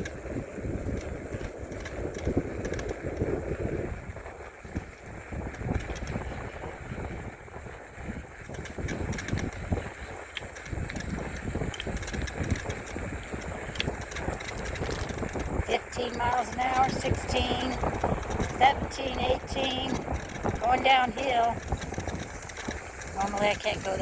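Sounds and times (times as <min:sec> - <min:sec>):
wind buffeting microphone: 0:00.0 - 0:24.0
light ticks: 0:08.5 - 0:24.0.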